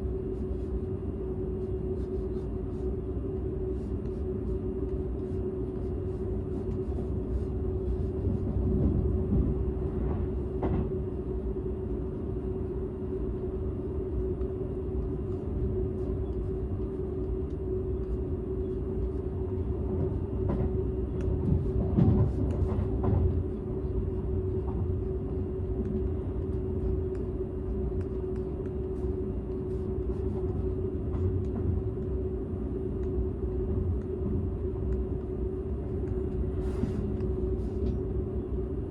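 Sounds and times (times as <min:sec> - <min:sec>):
constant hum: 0:00.0 - 0:38.9
train wheels rumbling on rail: 0:08.2 - 0:11.1, 0:19.8 - 0:23.6.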